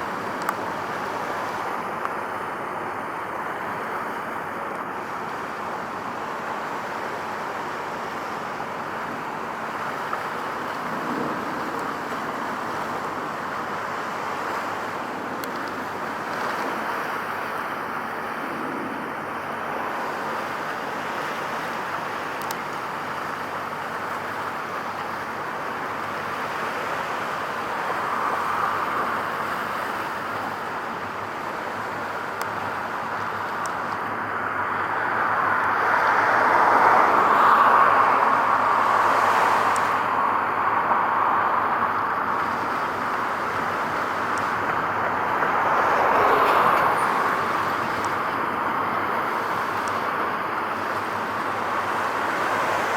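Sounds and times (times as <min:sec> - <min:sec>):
road traffic noise: 0:00.0 - 0:52.9
vehicle passing: 0:34.1 - 0:50.2.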